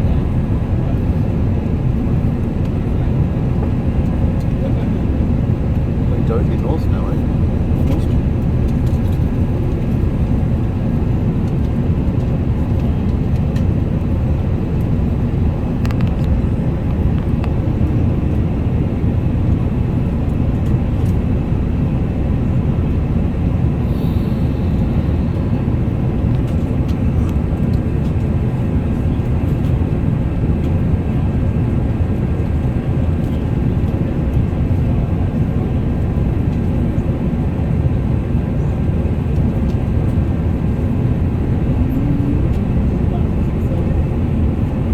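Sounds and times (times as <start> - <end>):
airliner engines rumbling in cabin: 0.0 - 44.9
rushing air: 23.6 - 26.2.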